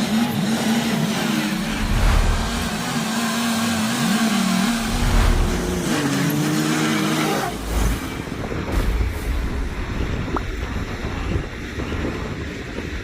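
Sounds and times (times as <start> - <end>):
rushing noise: 0.0 - 12.2
heavy machinery diesel engine: 0.0 - 13.0.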